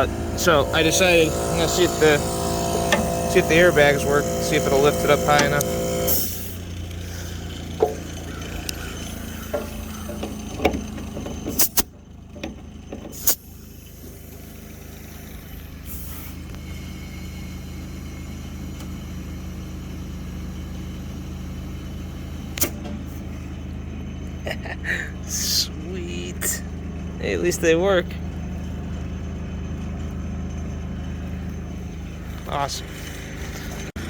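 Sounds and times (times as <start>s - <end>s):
air compressor humming: 0.0s - 34.0s
air hiss: 13.2s - 17.7s.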